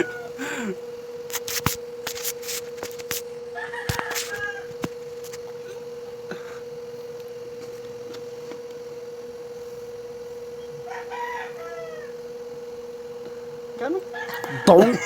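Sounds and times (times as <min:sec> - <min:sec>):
high-pitched electrical hum: 0:00.0 - 0:15.0
rooster crowing: 0:03.5 - 0:04.9, 0:10.6 - 0:12.8, 0:14.0 - 0:15.0.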